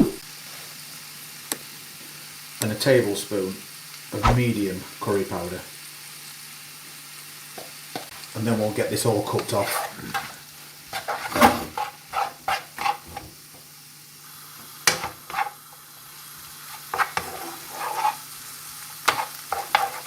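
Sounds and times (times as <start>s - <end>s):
food sizzling in a pan: 0.0s - 20.0s
utensil scraping and knocking pan: 9.3s - 13.3s, 16.8s - 18.2s, 19.0s - 20.0s.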